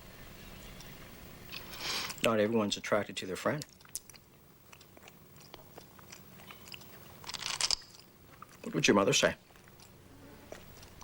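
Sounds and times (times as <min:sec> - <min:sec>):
faint hiss: 0:00.0 - 0:03.0.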